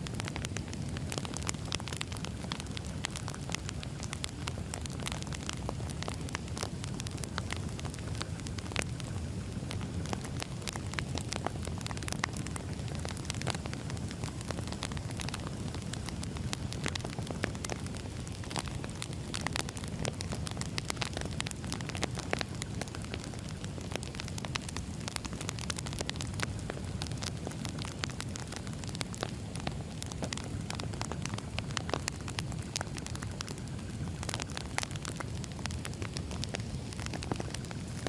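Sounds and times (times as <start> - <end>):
logs crackling and popping: 0.0 - 38.0
wood fire rumbling: 0.0 - 38.0.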